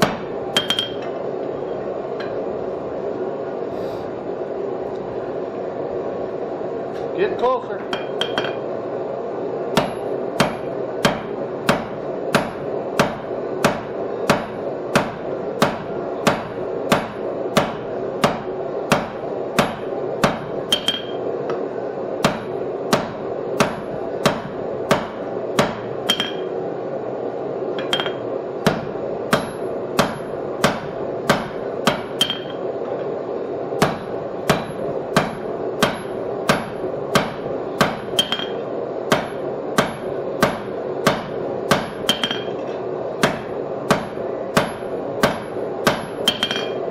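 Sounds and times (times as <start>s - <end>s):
hammer striking steel on anvil: 0.0s - 1.2s, 7.9s - 8.6s, 9.8s - 21.2s, 22.2s - 26.5s, 27.8s - 32.6s, 33.8s - 46.9s
steady hum: 0.0s - 46.9s.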